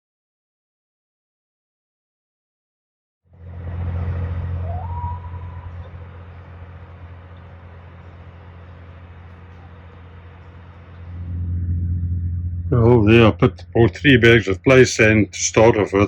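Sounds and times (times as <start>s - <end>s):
vehicle running rumble: 3.3s - 16.0s
rising whistle-like tone: 3.7s - 6.6s.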